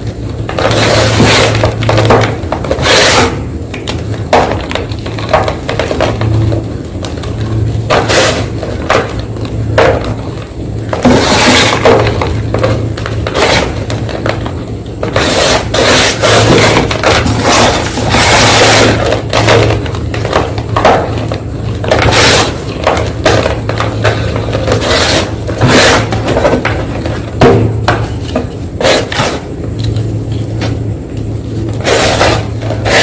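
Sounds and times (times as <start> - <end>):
low steady hum: 0.0 - 33.0
chalk crunching and scraping: 2.7 - 3.4, 7.9 - 8.6, 11.0 - 12.1, 15.0 - 19.5, 21.9 - 22.6, 24.1 - 26.3.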